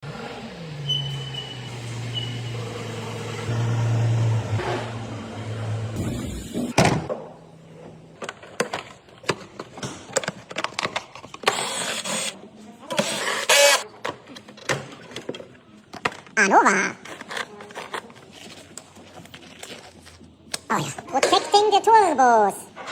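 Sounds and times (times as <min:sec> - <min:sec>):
tools and parts rattling: 0:08.2 - 0:12.3.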